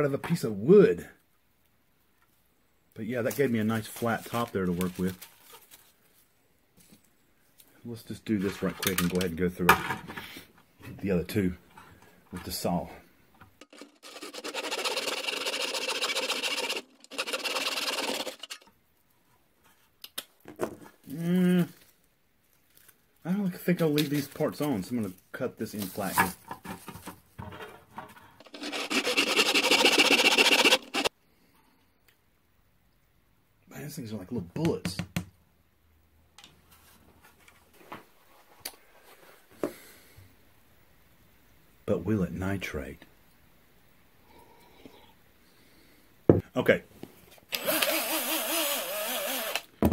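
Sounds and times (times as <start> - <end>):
saw cutting corn cob: 13.6 - 18.7, 28.4 - 31.1, 47.6 - 49.7
person humming: 21.1 - 21.8.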